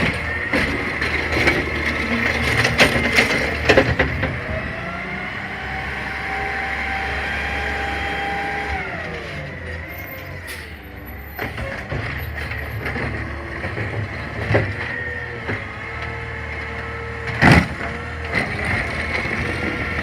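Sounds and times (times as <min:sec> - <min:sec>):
metal clanks and knocks: 0:00.0 - 0:04.5
engine and hydraulic whine: 0:00.0 - 0:20.0.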